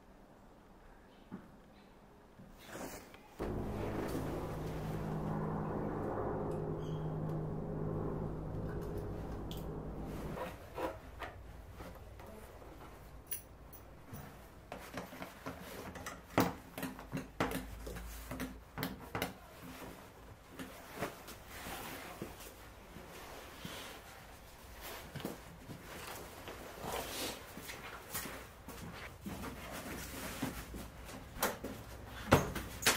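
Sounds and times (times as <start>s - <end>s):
steady hum: 3.4s - 10.6s.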